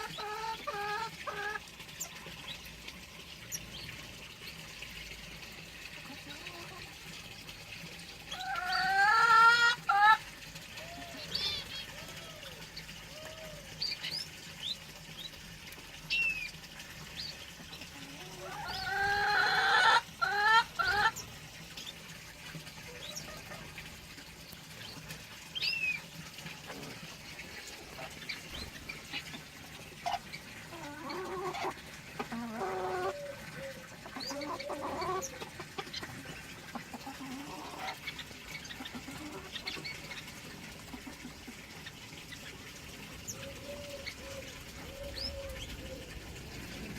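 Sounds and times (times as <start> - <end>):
birds chirping: 43.2 - 46.9.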